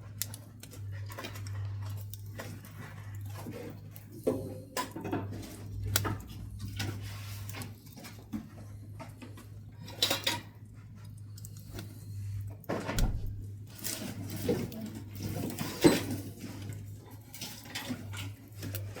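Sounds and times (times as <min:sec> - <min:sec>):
wood stove fire crackling: 0:00.0 - 0:19.0
steady low hum: 0:11.2 - 0:13.7.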